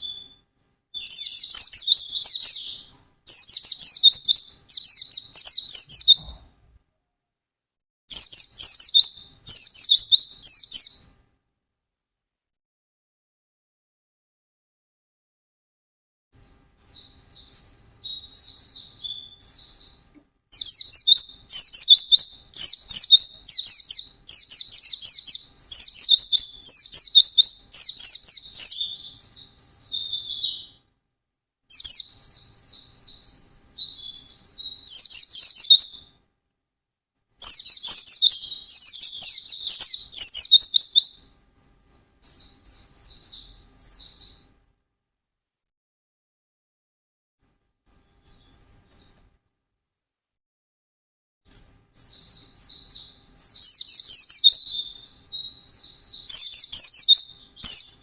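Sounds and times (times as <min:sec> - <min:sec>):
bird twittering song: 0:00.0 - 0:06.5, 0:08.1 - 0:11.2, 0:16.4 - 0:30.8, 0:31.7 - 0:36.1, 0:37.4 - 0:44.6, 0:47.4 - 0:49.2, 0:51.5 - 0:58.0.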